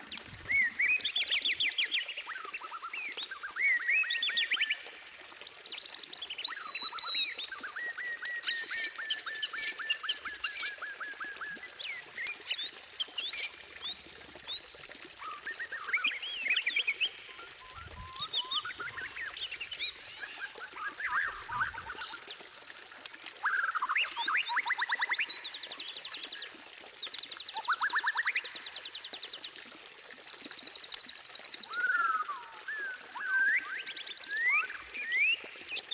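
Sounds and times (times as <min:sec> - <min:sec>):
bird song with loud whistles: 0:15.4 - 0:19.9.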